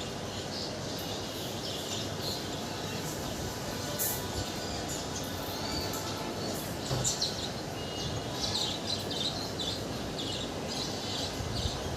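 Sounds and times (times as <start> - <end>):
birds chirping: 0.0 - 11.9
steady background noise: 0.0 - 11.9.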